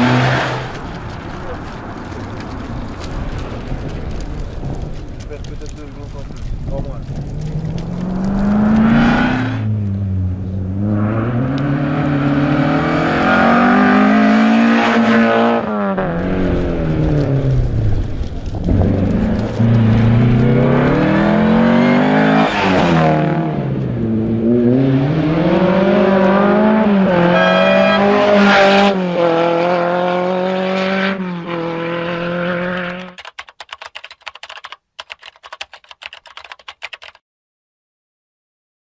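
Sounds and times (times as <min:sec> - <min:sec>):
rally car engine at full throttle: 0:00.0 - 0:02.4, 0:06.7 - 0:33.1.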